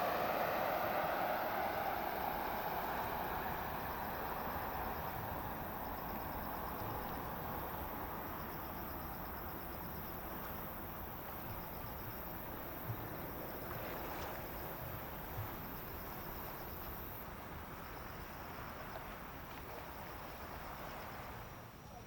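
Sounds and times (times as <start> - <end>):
distant jet airliner: 0.0 - 8.5
insects chirping: 0.0 - 22.0.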